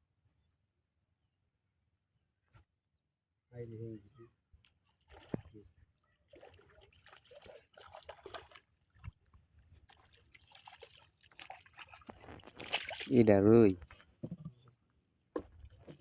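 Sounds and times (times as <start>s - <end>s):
water splashing at a boat: 5.0s - 5.6s, 6.2s - 14.5s.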